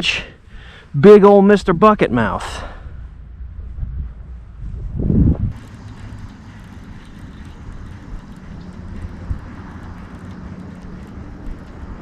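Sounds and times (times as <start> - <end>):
low engine drone: 2.9 - 12.0
faint clicks: 5.6 - 12.0.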